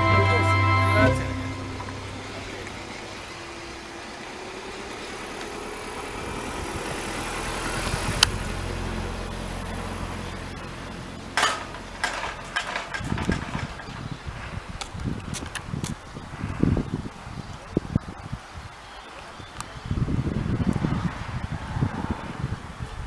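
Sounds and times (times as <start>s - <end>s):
engine humming: 0.0s - 12.8s.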